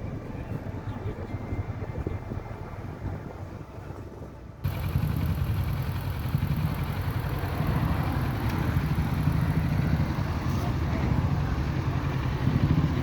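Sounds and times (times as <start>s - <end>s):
motorcycle engine idling: 4.6s - 13.0s.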